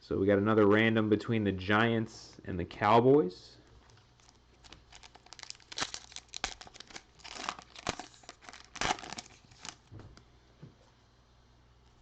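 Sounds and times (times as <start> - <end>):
loud wrapper rustles: 3.9 - 9.9
wrapper tearing and crinkling: 3.9 - 9.9.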